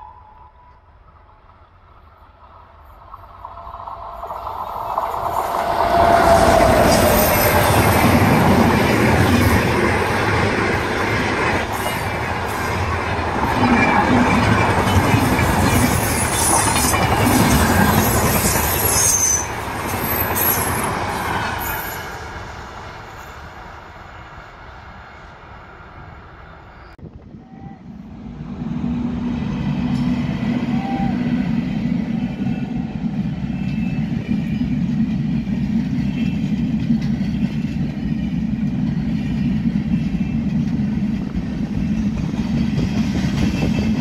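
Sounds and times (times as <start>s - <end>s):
train wheels rumbling on rail: 0.0s - 44.0s
high wheel squeals: 17.4s - 20.9s.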